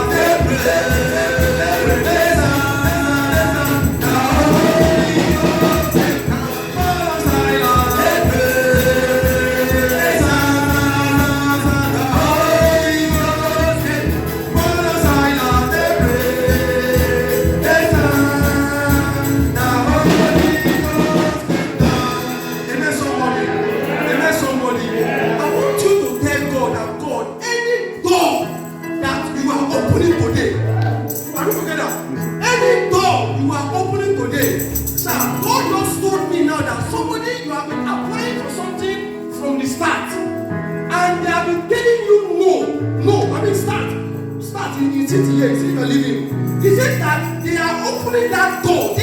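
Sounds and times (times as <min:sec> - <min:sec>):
percussion beat: 0:00.0 - 0:26.8, 0:28.1 - 0:29.1, 0:29.8 - 0:32.6, 0:34.2 - 0:36.3, 0:43.6 - 0:49.0
voices singing gospel: 0:00.0 - 0:49.0.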